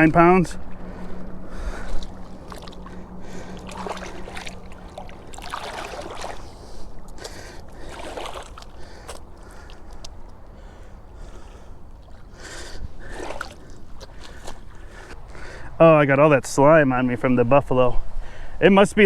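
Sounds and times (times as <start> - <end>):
low steady hum: 0.0 - 18.2
water splashing at shoreline: 0.5 - 15.7.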